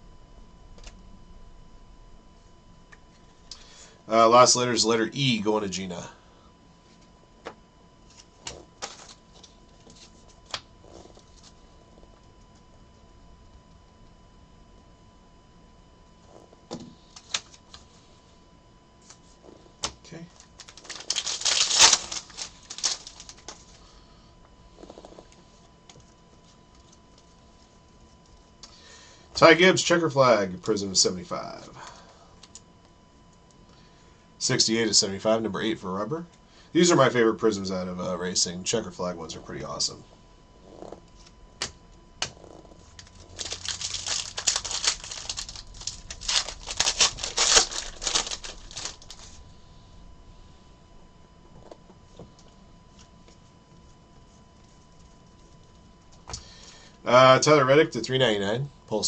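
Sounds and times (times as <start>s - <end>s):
cards rustling: 8.0s - 11.6s, 17.0s - 18.0s, 19.0s - 23.9s, 41.2s - 49.4s
wrapper crinkling: 20.2s - 23.8s, 42.3s - 49.4s.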